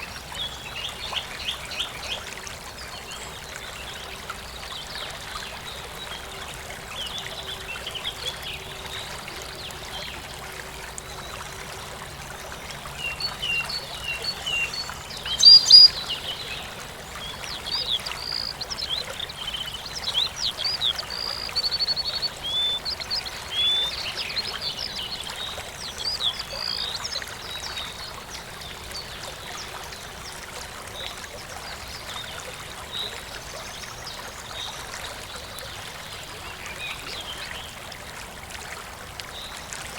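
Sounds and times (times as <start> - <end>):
stream trickling: 0.0 - 39.9
small birds chirping: 13.5 - 16.5.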